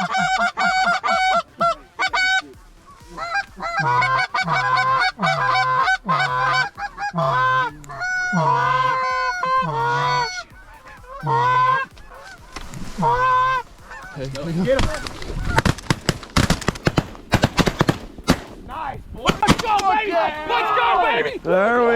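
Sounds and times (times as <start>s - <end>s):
goose honking and clucking: 0.0s - 21.9s.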